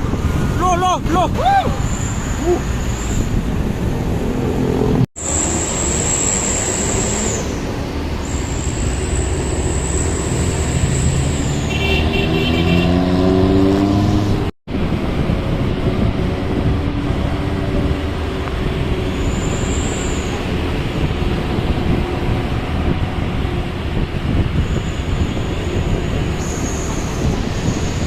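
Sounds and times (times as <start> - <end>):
truck engines running: 0.0 - 28.0.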